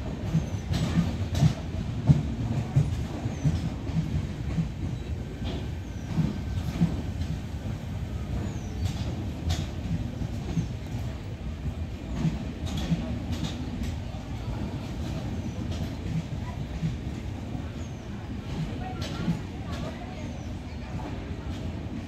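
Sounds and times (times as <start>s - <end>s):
train wheel rumble: 0.0s - 22.0s.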